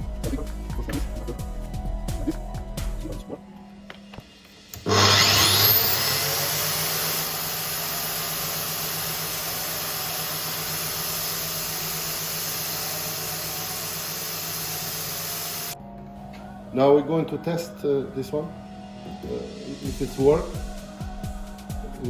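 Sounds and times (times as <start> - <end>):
angle grinder running: 4.8 - 15.8.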